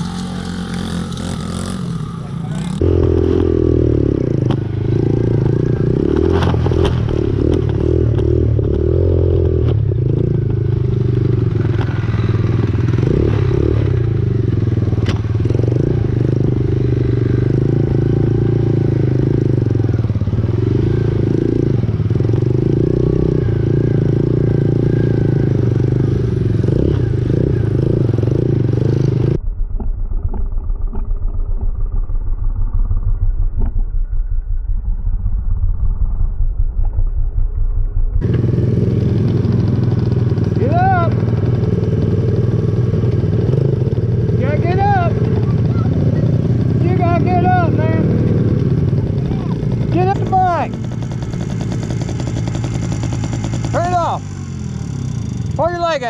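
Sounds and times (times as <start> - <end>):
small motorcycle engine clattering: 4.1 - 20.4, 38.2 - 56.0.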